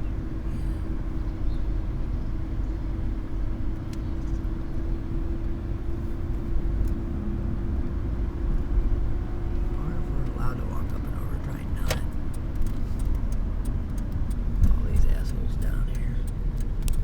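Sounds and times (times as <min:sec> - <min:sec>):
car engine and tyres rumbling: 0:00.0 - 0:17.0
constant cabin hum: 0:08.3 - 0:17.0.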